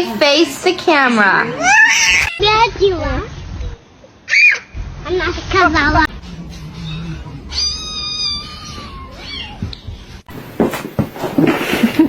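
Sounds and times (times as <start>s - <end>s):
cat meowing: 6.1s - 9.9s.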